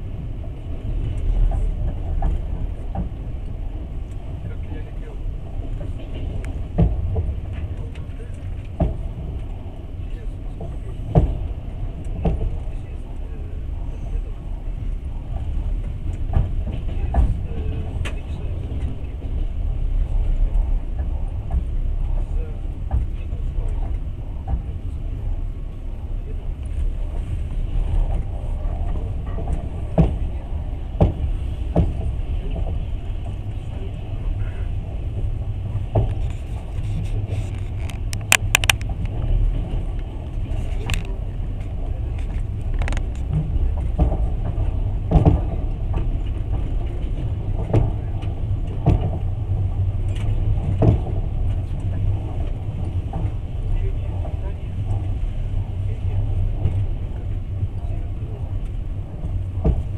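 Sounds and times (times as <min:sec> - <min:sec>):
train wheels rumbling on track: 0:00.0 - 0:59.9
knocks and sharp clicks: 0:37.5 - 0:39.1.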